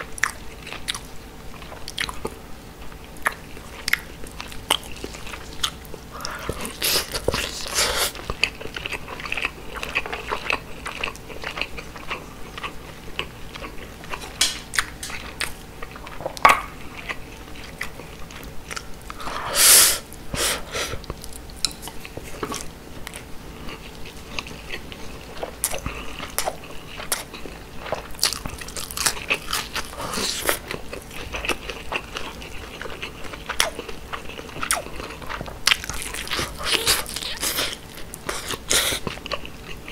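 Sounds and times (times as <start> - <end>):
wet chewing and lip smacks: 0.1 - 19.2.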